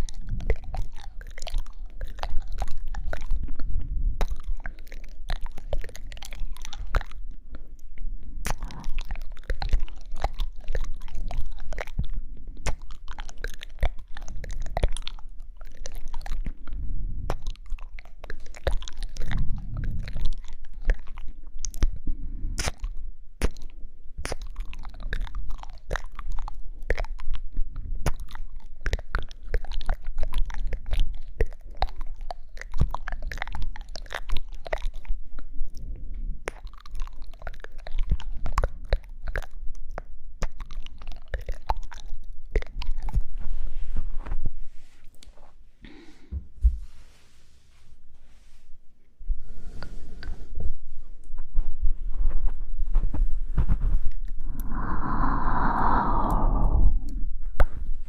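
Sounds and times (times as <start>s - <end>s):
wet mouth clicks and smacks: 0.0s - 22.0s, 22.6s - 43.2s.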